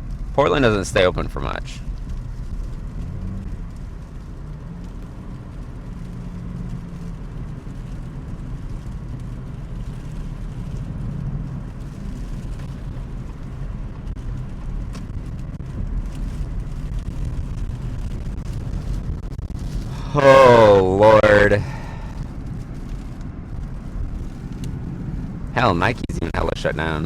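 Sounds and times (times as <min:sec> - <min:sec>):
low road and engine rumble: 0:00.0 - 0:27.0.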